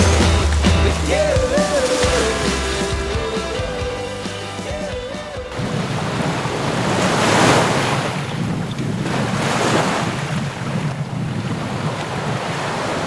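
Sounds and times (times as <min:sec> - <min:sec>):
water rushing along a hull: 0:00.0 - 0:13.0
wind buffeting the microphone: 0:05.6 - 0:13.0.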